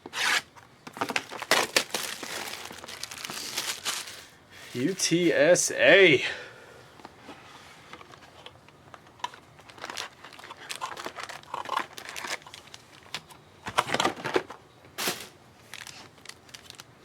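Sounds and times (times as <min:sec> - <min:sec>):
plastic wrapping crinkling and tearing: 0:00.2 - 0:04.4, 0:09.2 - 0:13.2, 0:13.8 - 0:17.0.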